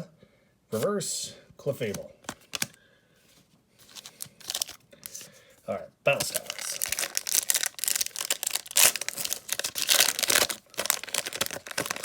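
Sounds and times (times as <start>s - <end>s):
foil wrapper crinkling: 3.8s - 5.3s, 6.1s - 12.0s.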